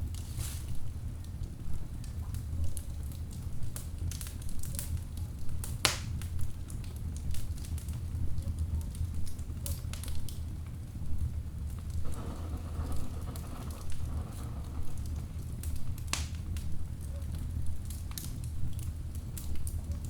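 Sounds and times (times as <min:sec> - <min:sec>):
fire crackles and snaps: 0:00.0 - 0:20.0
low rumble of burning logs: 0:00.0 - 0:20.0
loud pop from fire: 0:12.0 - 0:16.9.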